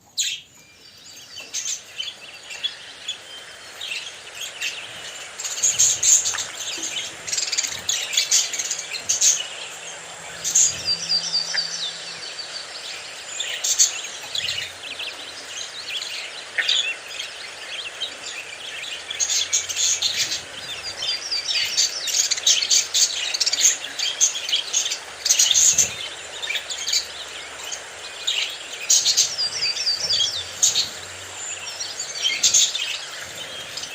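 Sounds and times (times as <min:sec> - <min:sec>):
budgerigars chirping and warbling: 0:00.1 - 0:33.9.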